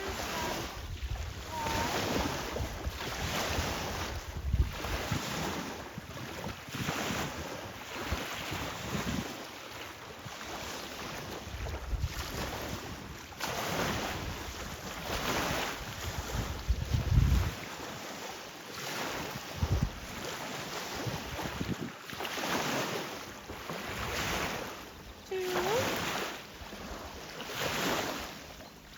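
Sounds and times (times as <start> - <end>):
wind gusting against microphone: 0.0 - 6.1, 13.8 - 17.7, 19.5 - 20.1.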